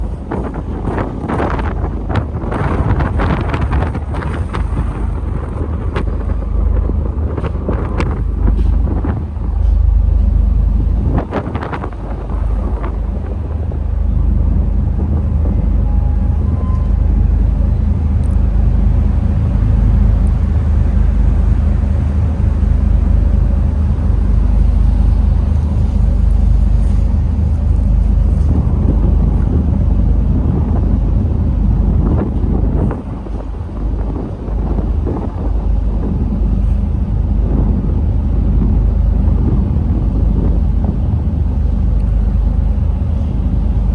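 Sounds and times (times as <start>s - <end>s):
ferry engine rumble: 0.0s - 43.9s
wind buffeting microphone: 0.0s - 43.9s.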